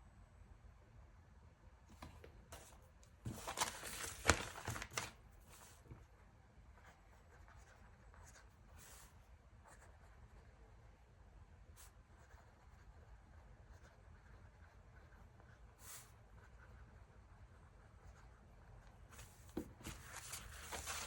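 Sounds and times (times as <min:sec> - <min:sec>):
paper rustling: 0:01.9 - 0:06.0, 0:19.1 - 0:21.0.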